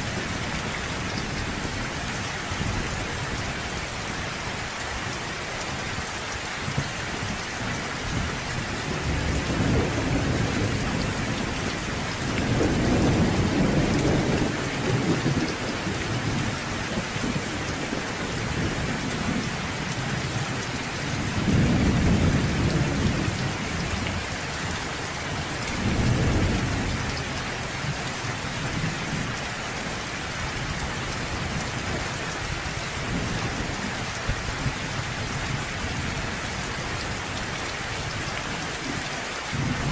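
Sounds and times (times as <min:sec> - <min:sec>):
low rolls of thunder: 0:08.1 - 0:24.4, 0:25.6 - 0:28.0, 0:39.5 - 0:39.9.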